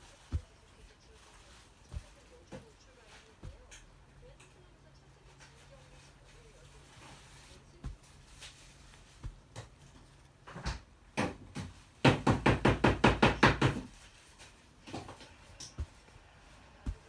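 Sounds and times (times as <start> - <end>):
rapid loud knocks: 12.0 - 13.9.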